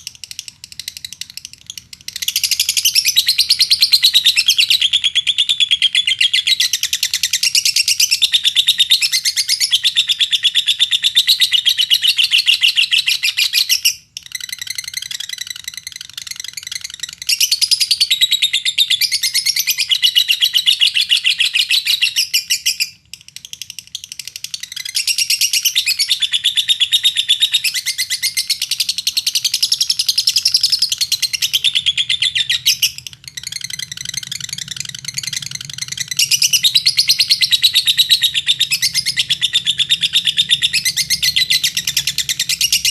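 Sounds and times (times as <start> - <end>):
lovebird chattering trills: 22.4 - 42.9.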